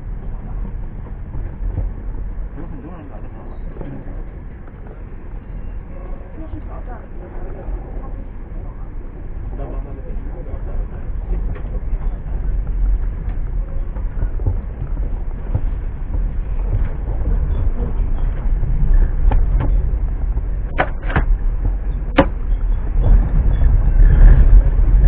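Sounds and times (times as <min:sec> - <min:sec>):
passenger train rumbling: 0:00.0 - 0:25.0
sharp clicks and knocks: 0:11.3 - 0:23.5.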